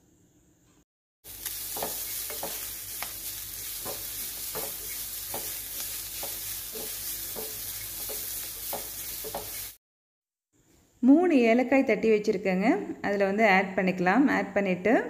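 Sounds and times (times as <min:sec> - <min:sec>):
coconut sizzling in ghee: 0:01.2 - 0:09.8
wooden spatula scraping pan: 0:01.4 - 0:09.8.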